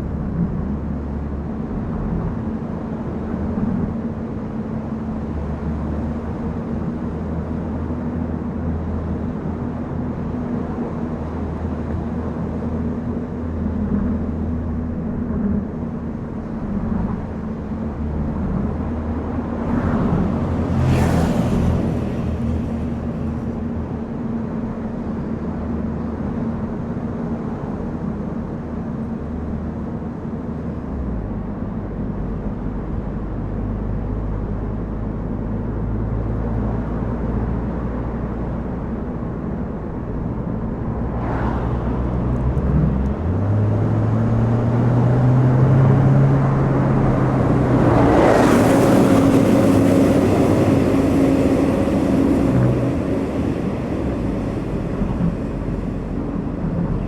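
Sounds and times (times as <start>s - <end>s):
car engine hum: 0.0s - 57.0s
road noise: 0.0s - 57.0s
loud rushing noise: 18.6s - 24.1s, 46.0s - 57.0s.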